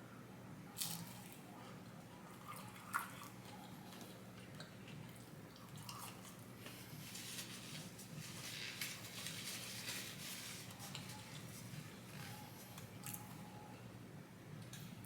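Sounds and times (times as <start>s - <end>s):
person chewing food: 2.1s - 7.2s.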